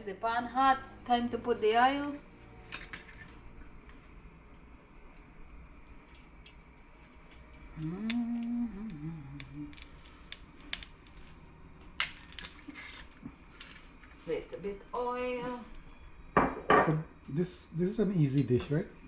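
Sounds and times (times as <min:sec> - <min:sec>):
low voice murmur: 0:07.8 - 0:09.8.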